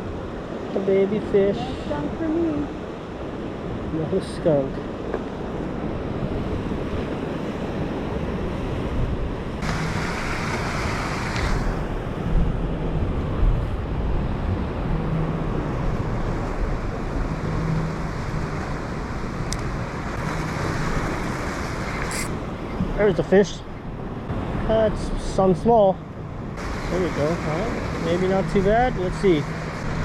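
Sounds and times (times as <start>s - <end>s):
ocean surf washing: 0.0s - 30.0s
wind buffeting microphone: 4.8s - 25.1s.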